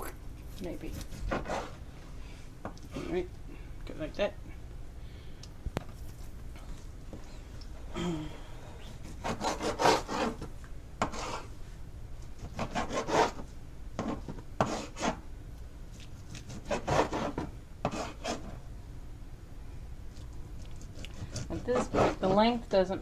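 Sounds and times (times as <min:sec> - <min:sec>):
knife sawing through raw chicken: 0:09.0 - 0:10.4, 0:11.0 - 0:11.5, 0:12.5 - 0:13.4, 0:16.3 - 0:18.5, 0:20.8 - 0:22.6.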